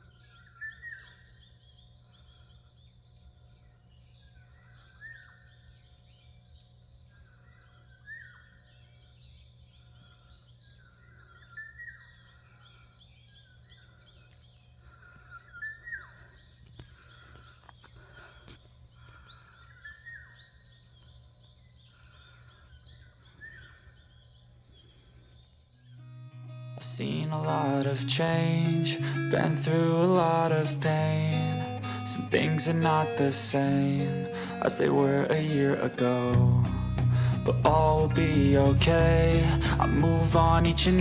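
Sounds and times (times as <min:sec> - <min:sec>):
birds chirping: 0:00.0 - 0:41.0
steady low hum: 0:26.8 - 0:41.0.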